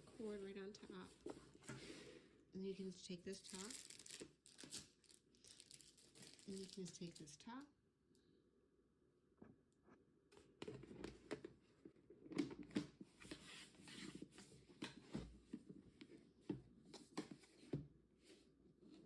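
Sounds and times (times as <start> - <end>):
fabric and plastic rustling: 0.0 - 2.1, 3.0 - 7.4.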